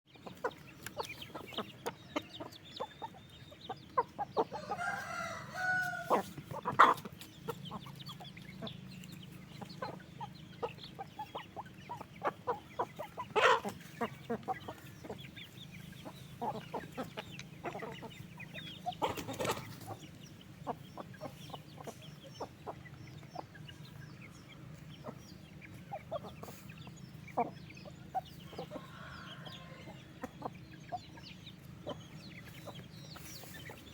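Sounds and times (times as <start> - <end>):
chickens clucking: 0.1 - 33.9
rooster-like call: 4.6 - 6.3.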